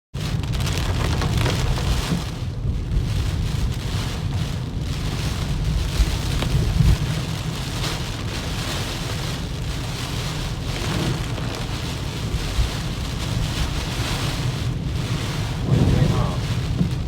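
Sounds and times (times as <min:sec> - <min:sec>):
heavy rain pouring: 0:00.2 - 0:17.0
steady low rumble: 0:00.2 - 0:17.0
wind: 0:00.2 - 0:17.0.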